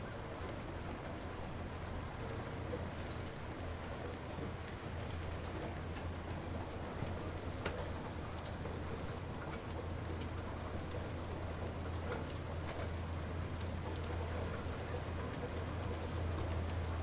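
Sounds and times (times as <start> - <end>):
light rain falling: 0.0 - 17.0.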